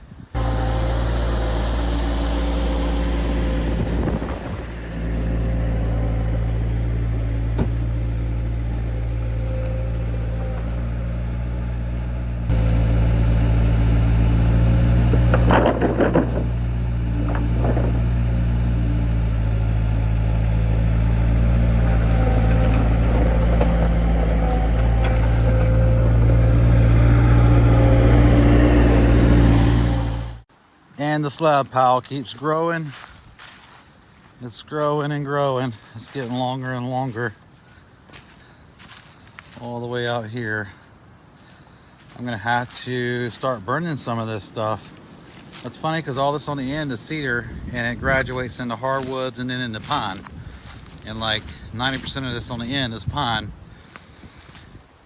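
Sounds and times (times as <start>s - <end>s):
engine running steadily: 0.3s - 30.5s, 44.8s - 54.6s
short knocks: 7.0s - 8.0s, 14.9s - 18.3s.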